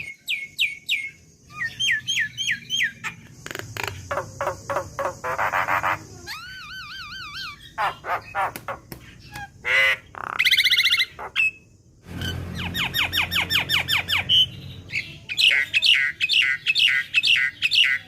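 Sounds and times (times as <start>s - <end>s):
myna bird calling: 0.0s - 18.0s.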